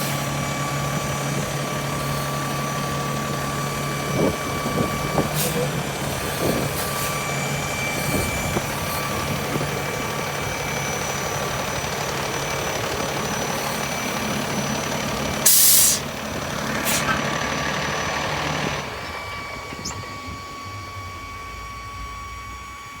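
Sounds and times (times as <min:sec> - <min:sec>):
diesel truck engine with whine: 0:00.0 - 0:23.0
air brake hiss: 0:15.4 - 0:16.2, 0:16.8 - 0:17.2.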